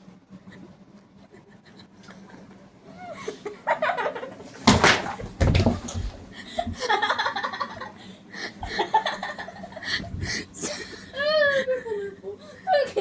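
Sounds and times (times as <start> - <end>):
people laughing: 3.0 - 4.6, 6.4 - 13.0.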